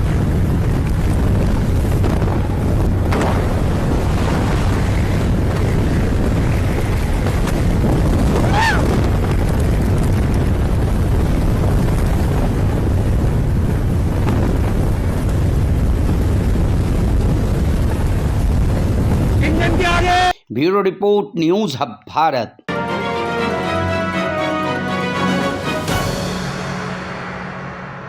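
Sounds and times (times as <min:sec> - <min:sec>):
wind buffeting microphone: 0:00.0 - 0:20.2.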